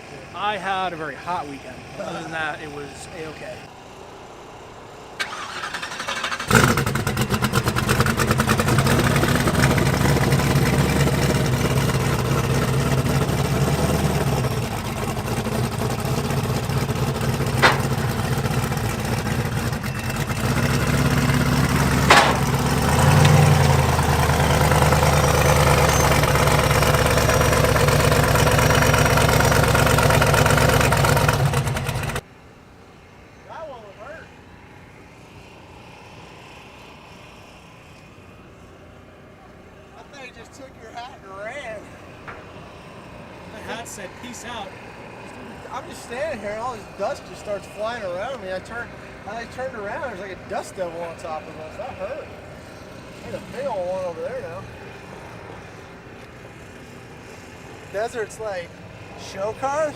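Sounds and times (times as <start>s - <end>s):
engine running: 0.0s - 32.3s, 41.6s - 59.9s.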